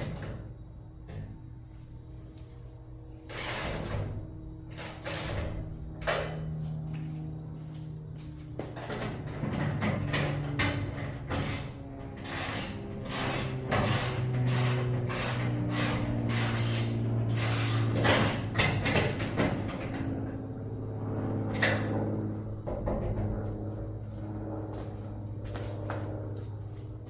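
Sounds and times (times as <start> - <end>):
garage door motor hum: 0.0 - 27.0
garage door clanks and clicks: 8.8 - 16.5, 17.6 - 20.3.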